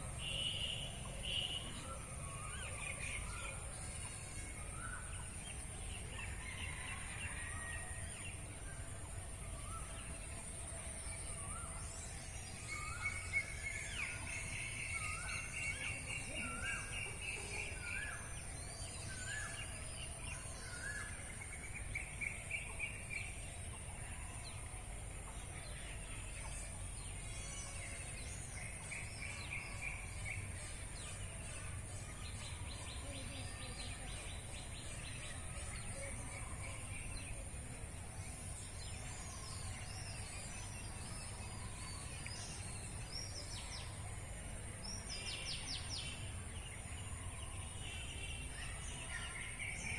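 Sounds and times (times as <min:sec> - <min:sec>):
wild birds singing and calling: 0:00.0 - 0:49.9.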